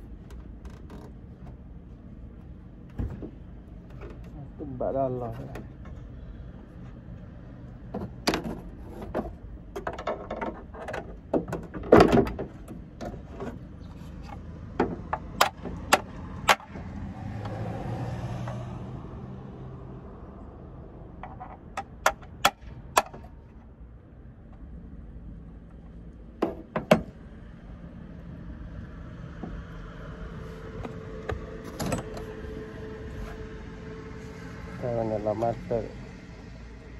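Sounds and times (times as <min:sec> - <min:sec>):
clicks and knocks of tools: 0:08.0 - 0:16.8.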